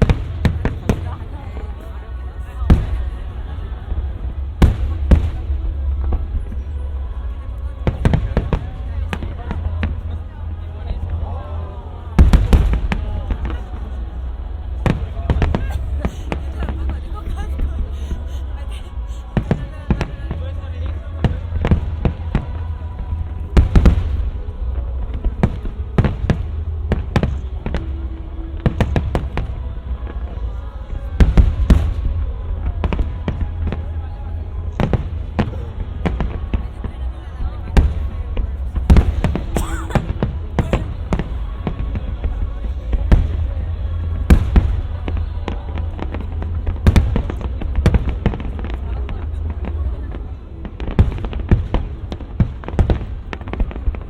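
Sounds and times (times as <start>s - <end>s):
heavy fireworks booms: 0.0s - 1.8s, 2.6s - 54.0s
low rumble: 0.0s - 54.0s
fireworks bangs: 12.2s - 17.7s, 37.7s - 49.8s.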